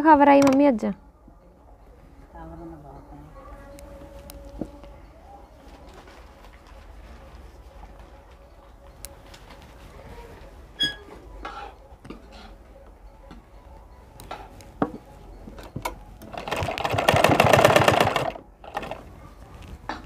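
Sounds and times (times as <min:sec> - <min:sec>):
sewing machine running: 0:16.3 - 0:19.0.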